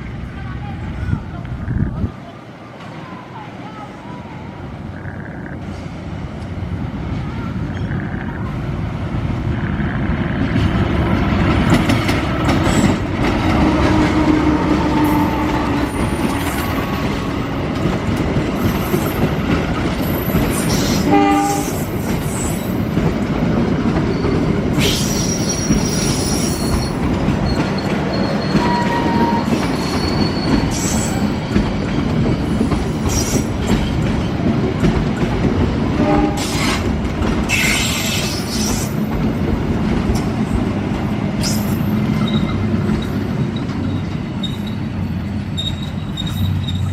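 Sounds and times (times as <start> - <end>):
train wheels running over rails: 5.0 - 46.9
high-pitched wheel squeals: 24.1 - 31.5, 41.4 - 44.9, 45.5 - 46.9.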